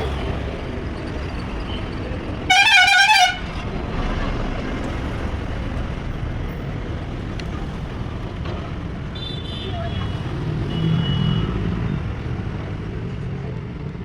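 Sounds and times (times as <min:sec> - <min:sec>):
engine and road rumble: 0:00.0 - 0:14.0
vehicle horn: 0:02.4 - 0:03.6, 0:09.1 - 0:11.6.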